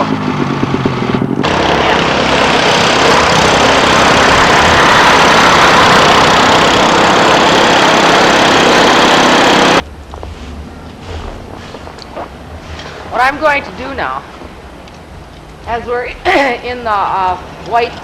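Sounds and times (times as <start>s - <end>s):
heavy engine running loud: 0.0s - 11.8s.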